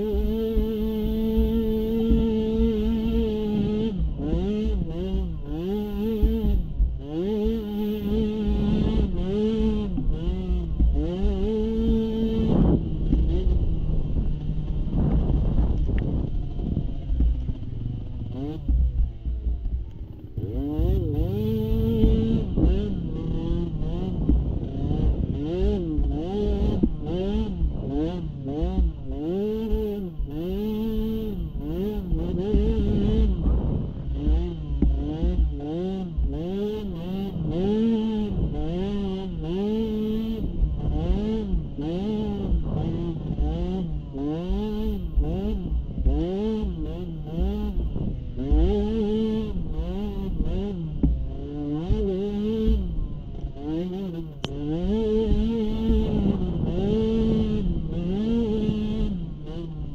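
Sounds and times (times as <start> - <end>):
atv engine revving: 0.0 - 59.9
steady low rumble: 11.7 - 29.2.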